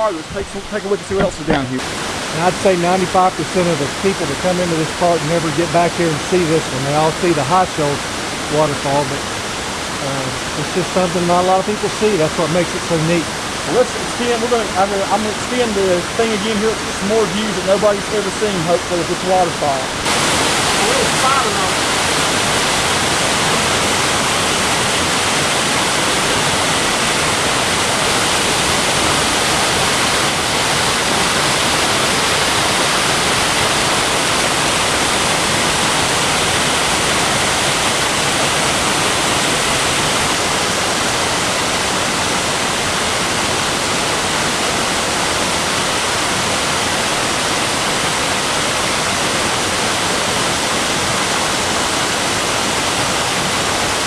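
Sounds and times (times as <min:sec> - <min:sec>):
waterfall rushing and splashing: 0:00.0 - 0:54.0.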